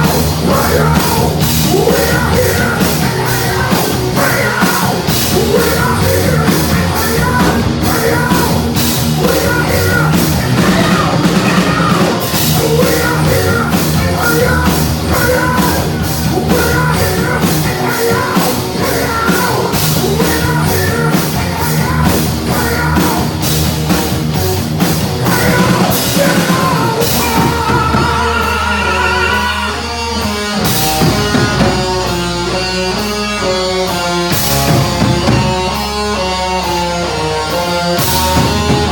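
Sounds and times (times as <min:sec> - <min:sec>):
shouted singing: 0:00.0 - 0:23.4, 0:25.2 - 0:30.3
heavy metal band playing live: 0:00.0 - 0:38.9.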